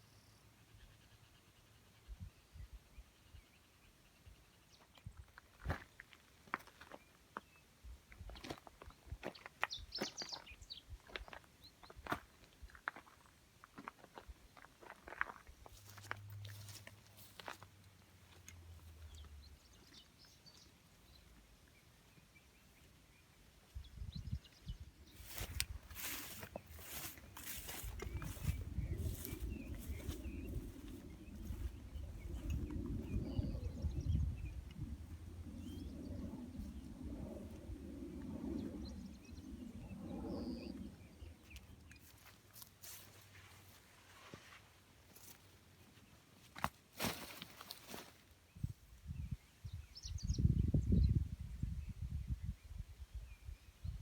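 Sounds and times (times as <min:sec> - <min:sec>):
bird chirps: 0:09.4 - 0:11.9
wind buffeting microphone: 0:23.7 - 0:41.8, 0:48.5 - 0:54.0.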